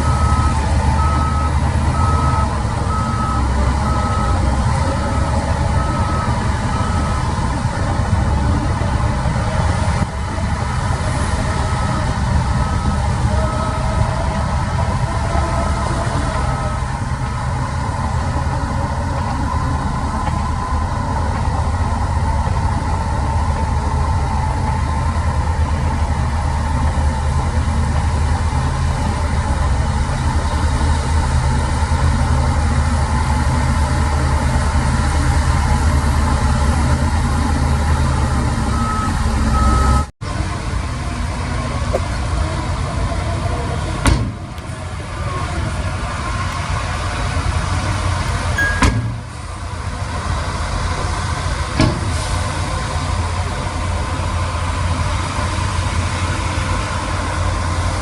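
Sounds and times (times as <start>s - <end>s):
heavy machinery diesel engines: 0.0s - 58.0s
short high beeps: 48.6s - 49.2s.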